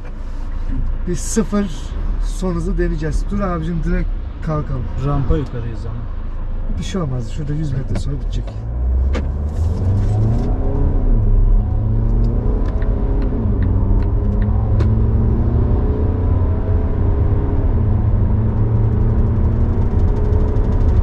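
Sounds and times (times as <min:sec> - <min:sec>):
diesel engine accelerating: 0:00.0 - 0:21.0
road rumble: 0:00.0 - 0:21.0.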